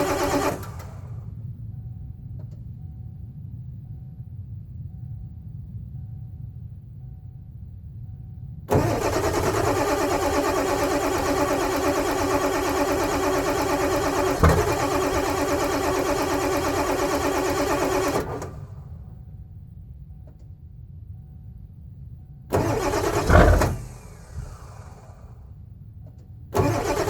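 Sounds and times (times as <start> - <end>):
diesel engine starter cranking: 0.0 - 1.3, 8.7 - 18.8, 22.5 - 25.4, 26.6 - 27.0.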